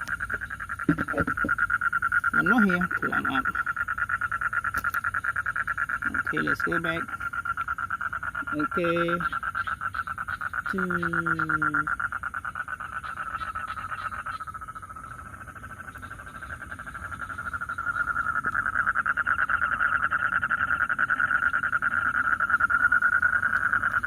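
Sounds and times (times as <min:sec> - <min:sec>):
toads calling in pulsing trill: 0:00.0 - 0:24.0.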